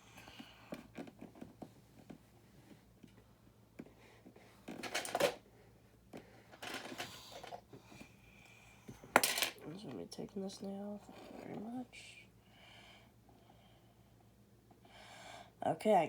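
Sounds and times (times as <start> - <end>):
plastic parts rattling: 4.7 - 5.4, 6.5 - 7.6.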